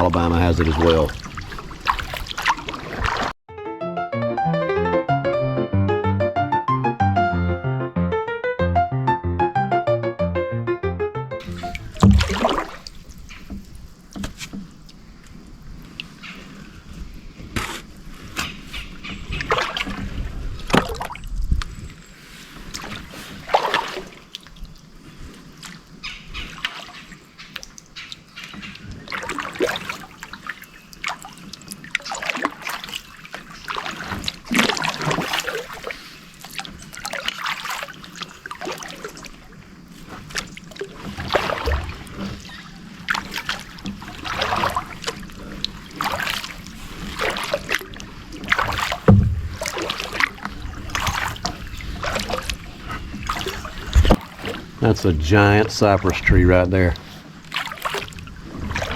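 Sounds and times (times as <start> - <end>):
water dripping off paddle: 0.0 - 3.3, 11.4 - 21.9, 22.5 - 58.9
paddle splashing in water: 0.0 - 3.4, 11.4 - 58.9.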